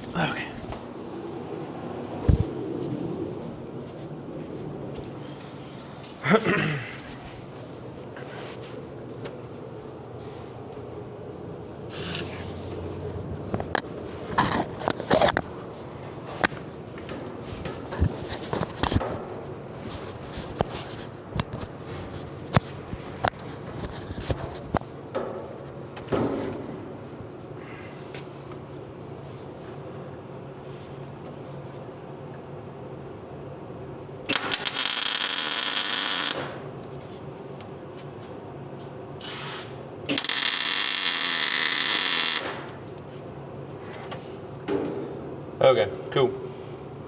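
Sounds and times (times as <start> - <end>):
welding arc burst: 34.3 - 36.5, 40.1 - 42.6
welding hiss: 40.1 - 42.4.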